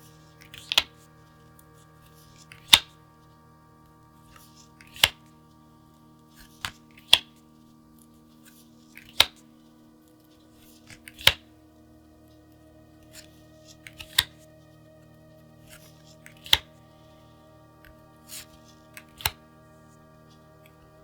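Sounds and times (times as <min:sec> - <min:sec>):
faint steady drone: 0:00.0 - 0:21.0.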